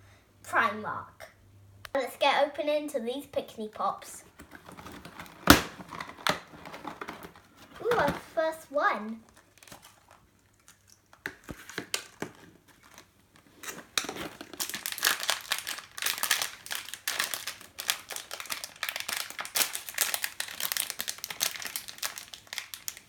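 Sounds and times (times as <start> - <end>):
toy wrapper crinkling: 4.3 - 8.5, 9.2 - 23.0.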